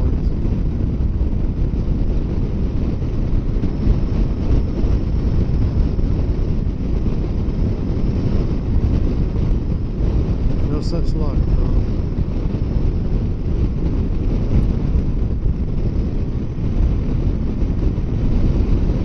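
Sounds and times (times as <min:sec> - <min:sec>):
wind noise on microphone: 0:00.0 - 0:19.0.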